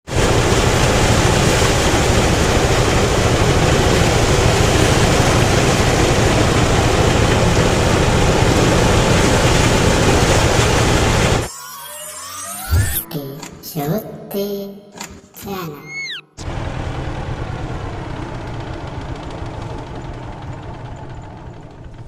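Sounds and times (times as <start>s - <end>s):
low engine drone: 0.0s - 13.7s, 16.4s - 22.0s
threshing machine running: 0.1s - 11.5s, 16.4s - 22.0s.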